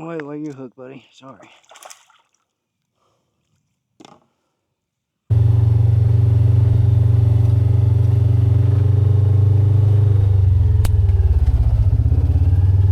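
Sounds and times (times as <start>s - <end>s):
motorcycle engine running: 5.3s - 12.9s.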